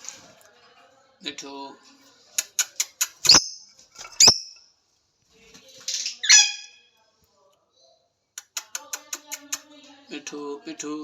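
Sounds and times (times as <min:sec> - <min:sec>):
bird squawking: 0:06.2 - 0:06.8.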